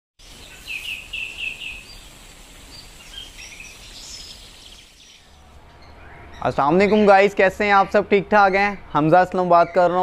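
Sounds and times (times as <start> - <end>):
faint steady hiss: 0.2 - 7.6
birds chirping: 0.2 - 10.0.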